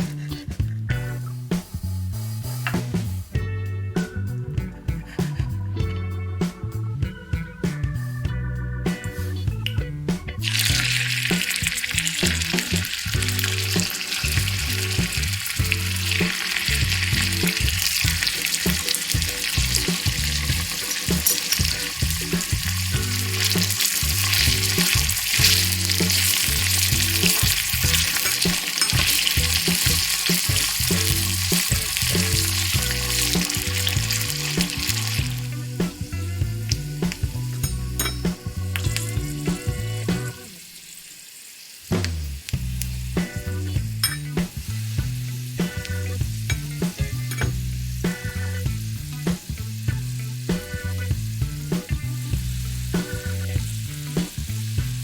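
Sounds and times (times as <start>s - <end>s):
background music with low beat: 0.0s - 40.5s, 42.0s - 55.0s
food sizzling in hot oil: 10.4s - 55.0s
stirring clicks: 10.5s - 35.5s.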